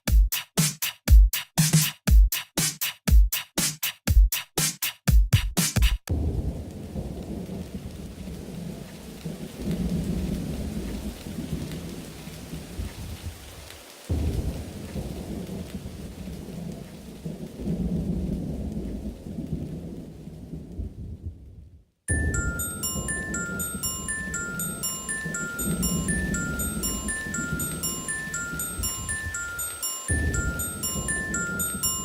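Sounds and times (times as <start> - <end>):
drum track: 0.0 - 6.4, 22.1 - 32.0
rolling thunder: 6.1 - 13.5, 14.1 - 32.0
steady rain: 6.1 - 32.0.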